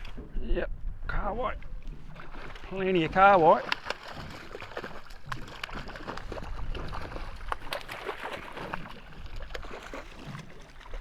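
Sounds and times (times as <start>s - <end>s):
low wind rumble: 0.0s - 3.7s, 5.8s - 7.7s
water lapping against boat hull: 0.0s - 11.0s.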